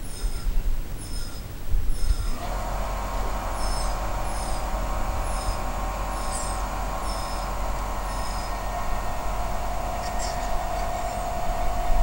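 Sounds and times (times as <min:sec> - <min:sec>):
small bird chirping: 0:00.0 - 0:02.4, 0:03.6 - 0:04.6, 0:05.2 - 0:08.7, 0:10.0 - 0:11.4
steady mid-pitched hum: 0:01.8 - 0:12.0.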